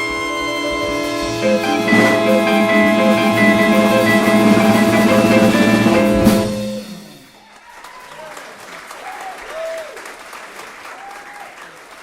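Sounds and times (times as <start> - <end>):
jazz band holding a chord: 0.0 - 7.4
busy drumming: 0.0 - 7.7
sharp drum hit: 0.8 - 7.4.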